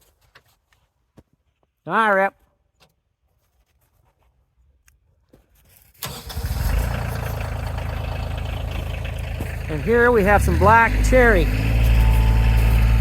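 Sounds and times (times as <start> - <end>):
engine cranking and idling: 6.0 - 13.0.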